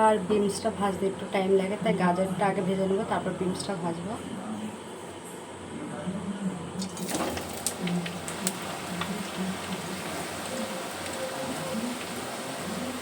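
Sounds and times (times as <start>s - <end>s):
carrots sizzling in hot oil: 6.8s - 13.0s
oil crackling and popping: 6.8s - 13.0s.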